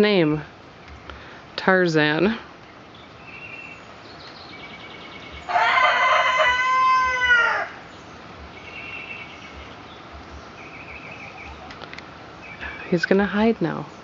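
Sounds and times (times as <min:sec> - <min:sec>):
birds chirping: 0:00.0 - 0:14.0
rooster crowing: 0:05.5 - 0:07.8.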